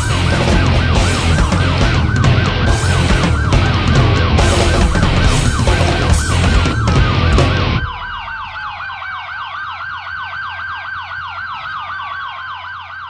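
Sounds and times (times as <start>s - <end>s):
loud dense sound: 0.0s - 9.0s
siren yelping: 0.0s - 13.0s
slower siren tone gliding down: 0.0s - 13.0s.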